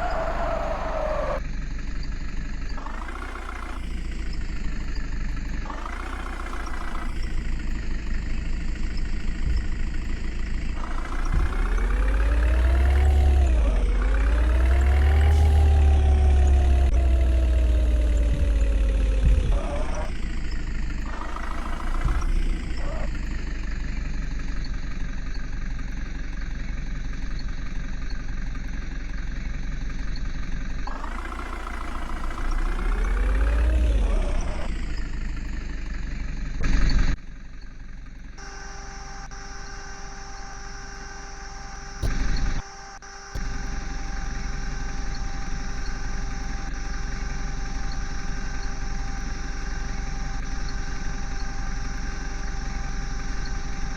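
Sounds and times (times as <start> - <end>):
loud engine burst: 0.0 - 1.4, 2.7 - 24.9, 30.8 - 37.2
diesel digger engine revving: 0.0 - 53.9.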